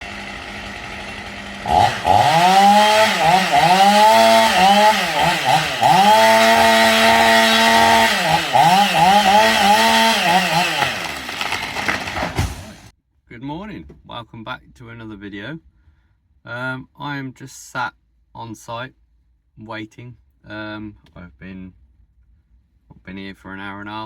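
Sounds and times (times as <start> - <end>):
chainsaw running at high revs: 0.0 - 12.9.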